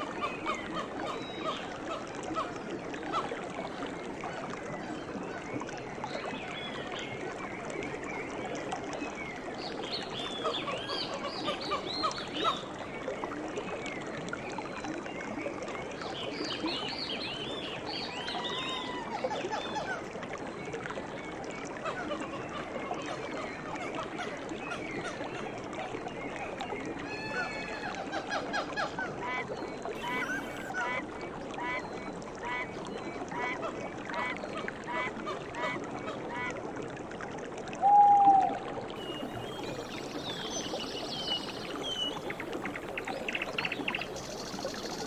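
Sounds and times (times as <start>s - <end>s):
birds calling in chorus: 30.0s - 30.7s, 39.0s - 45.0s.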